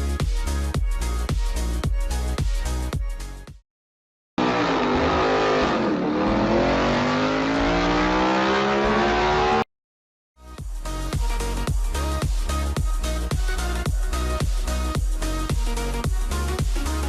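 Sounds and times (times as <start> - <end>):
vehicle engine revving: 4.4 - 9.7.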